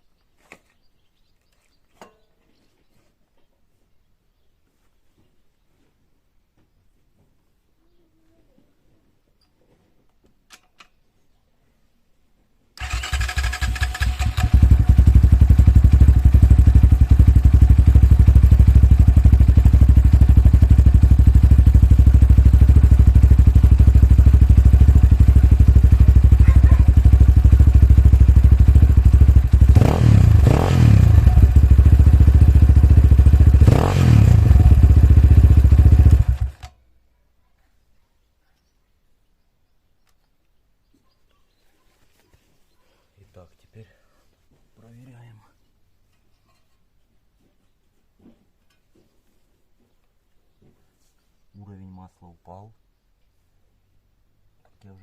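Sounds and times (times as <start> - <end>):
motorcycle engine idling: 12.8 - 36.7.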